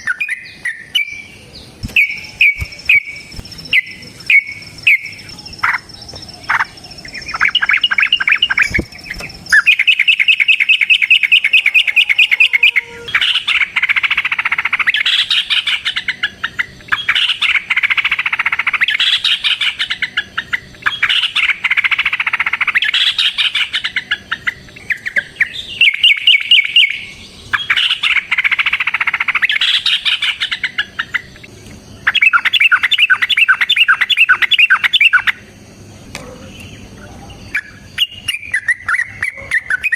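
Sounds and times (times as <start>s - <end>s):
bird singing rapid high notes: 0.0s - 35.4s.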